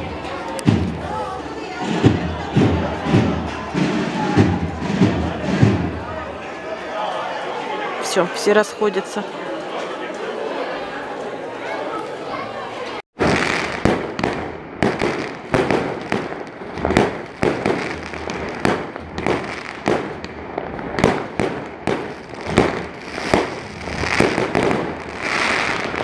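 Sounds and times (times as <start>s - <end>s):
fireworks bangs: 0.0s - 6.5s, 13.2s - 26.0s
fireworks crackling: 0.0s - 6.5s, 13.2s - 26.0s.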